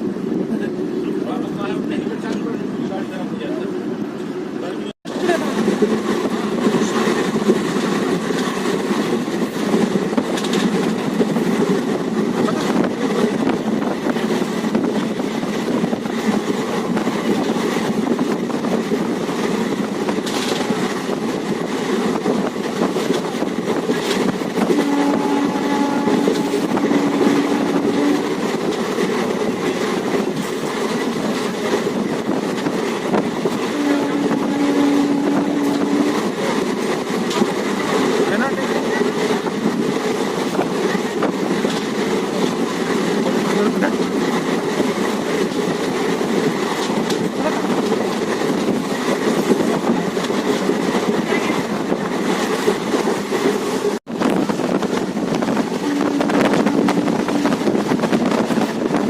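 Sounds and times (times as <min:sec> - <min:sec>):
train wheels rumbling on track: 0:00.0 - 0:59.0
train horn: 0:24.6 - 0:28.3, 0:33.6 - 0:36.3, 0:55.7 - 0:57.7.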